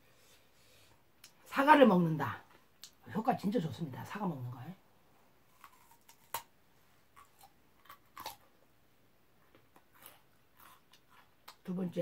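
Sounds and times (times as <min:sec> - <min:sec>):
person chewing crisp food: 0:05.4 - 0:08.7, 0:09.5 - 0:11.7.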